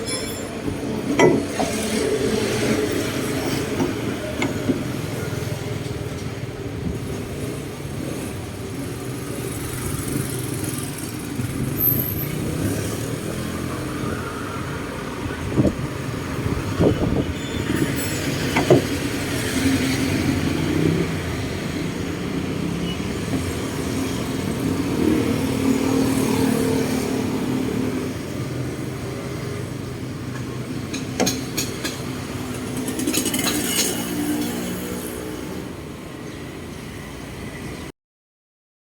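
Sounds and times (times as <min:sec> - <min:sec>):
sharp knocks and clanks: 0:01.1 - 0:02.0, 0:03.0 - 0:06.3, 0:18.1 - 0:19.2, 0:30.3 - 0:34.7.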